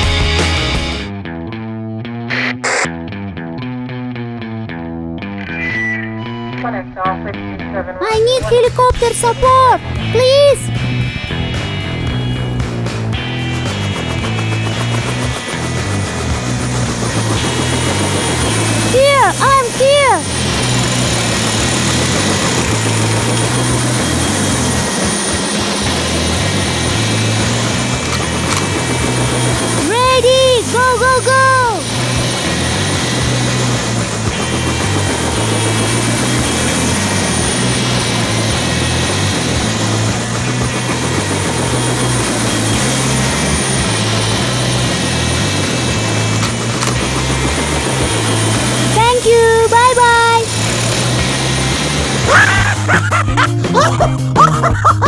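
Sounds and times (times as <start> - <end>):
low hum shifting in pitch: 5.2 - 7.9
helicopter rotor and engine: 6.3 - 54.9.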